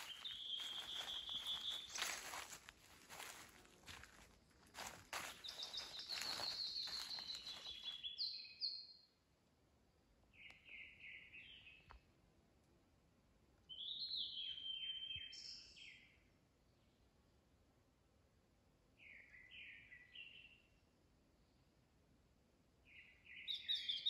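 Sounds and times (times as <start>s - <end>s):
songbird whistling: 0.0s - 2.0s
footsteps crunching on trail: 0.0s - 8.2s.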